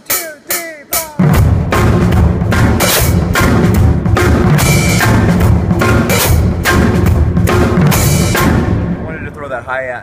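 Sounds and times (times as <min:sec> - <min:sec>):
hi-hat: 0:00.0 - 0:01.2
floor tom swing pattern: 0:00.0 - 0:09.6
bass drum: 0:00.6 - 0:09.3.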